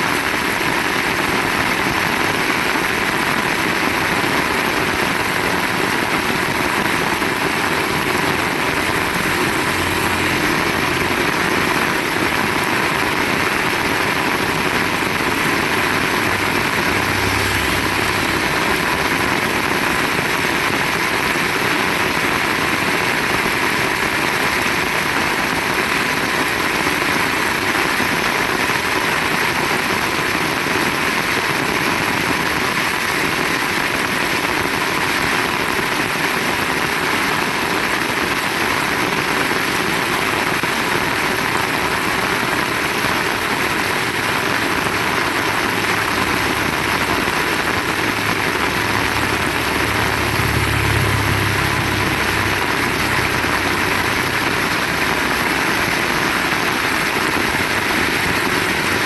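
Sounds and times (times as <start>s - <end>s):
heavy rain pouring: 0.0s - 59.0s
low rumble: 8.4s - 21.6s, 45.7s - 56.8s.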